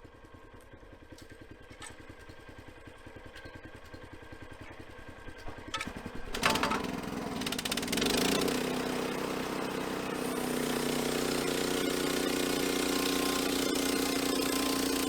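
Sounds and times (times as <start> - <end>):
engine clatter: 1.1 - 15.0
sawmill engine running: 5.4 - 15.0.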